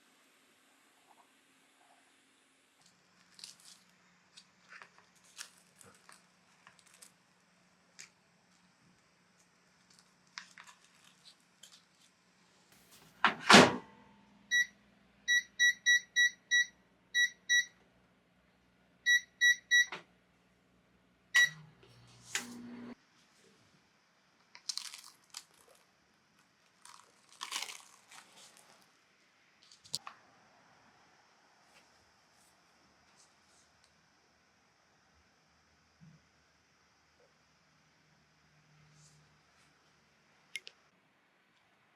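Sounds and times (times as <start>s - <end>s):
microwave door shutting: 13.3s - 13.9s
keypad beeps: 14.5s - 14.7s, 15.3s - 17.7s, 19.1s - 20.0s, 21.4s - 21.6s.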